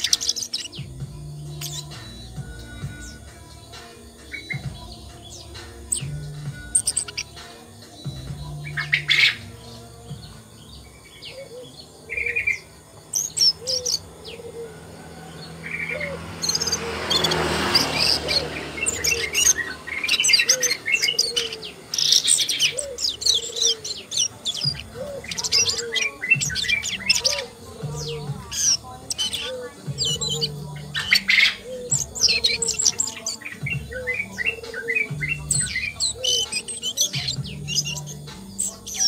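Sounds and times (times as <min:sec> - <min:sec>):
bird chirping and trilling: 0:00.0 - 0:39.0.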